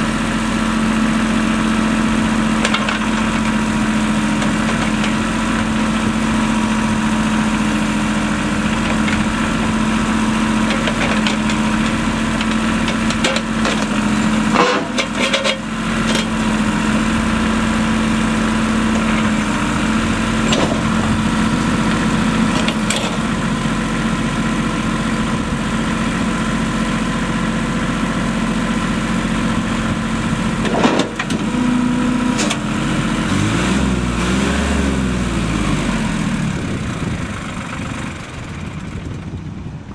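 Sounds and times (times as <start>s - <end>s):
tractor diesel engine running: 0.0s - 39.9s
sharp clanks: 12.4s - 16.4s, 20.4s - 21.2s.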